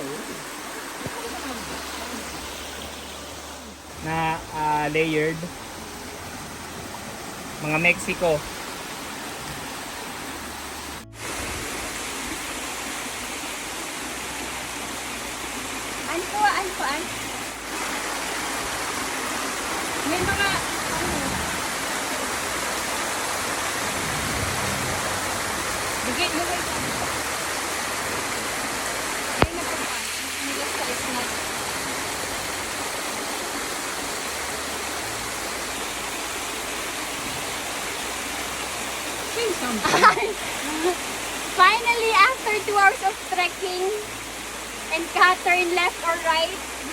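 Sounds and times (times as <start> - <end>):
small waterfall rushing: 0.0 - 46.9.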